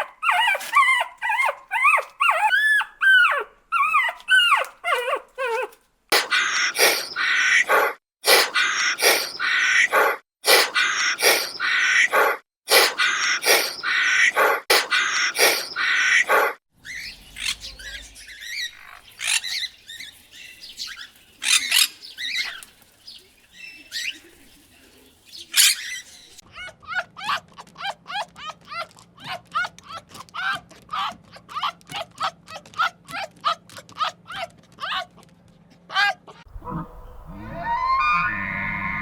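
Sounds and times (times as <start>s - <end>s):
dog yelping: 0.0s - 17.5s, 35.9s - 39.0s
birds chirping: 6.2s - 26.4s, 36.5s - 39.0s
falling whistled bird notes: 36.7s - 39.0s.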